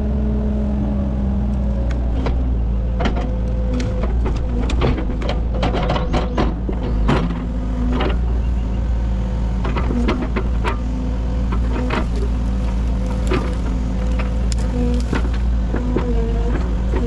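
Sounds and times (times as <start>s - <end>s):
excavator diesel engine running: 0.0s - 17.0s
sharp knocks and cracks: 3.0s - 8.2s, 11.5s - 17.0s.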